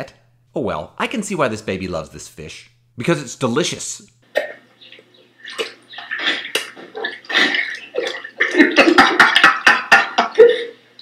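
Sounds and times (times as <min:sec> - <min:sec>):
water splashing in pool: 0:04.5 - 0:09.7
water slaps: 0:05.4 - 0:09.7.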